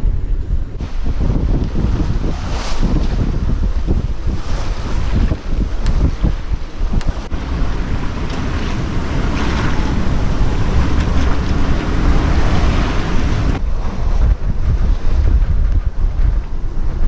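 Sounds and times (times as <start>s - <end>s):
wind buffeting microphone: 0.0s - 16.7s
water rushing along hull: 7.3s - 13.6s.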